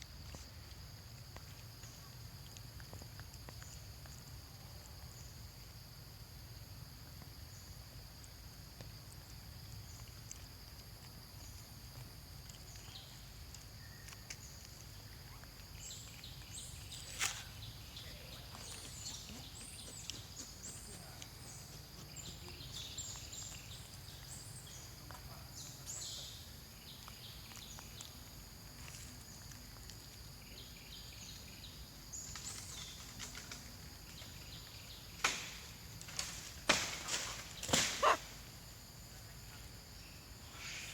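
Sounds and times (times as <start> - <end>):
small animal chirping: 38.0 - 38.2.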